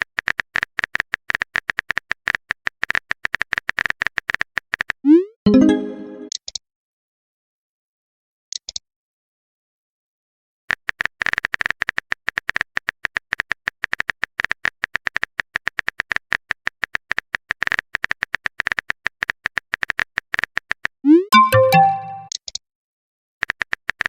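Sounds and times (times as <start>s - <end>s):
fast keyboard typing clicks: 0.0s - 5.0s, 10.7s - 22.6s
electronic message chime: 5.5s - 6.3s, 21.1s - 22.3s.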